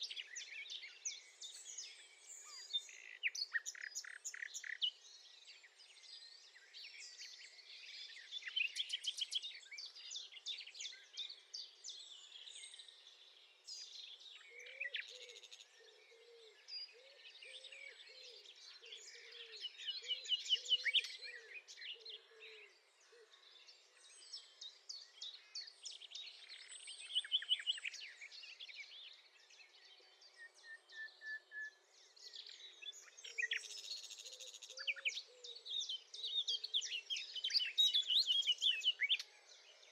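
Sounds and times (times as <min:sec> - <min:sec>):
nightingale singing: 0:00.0 - 0:05.0, 0:13.7 - 0:23.3, 0:24.1 - 0:29.3, 0:30.2 - 0:39.3.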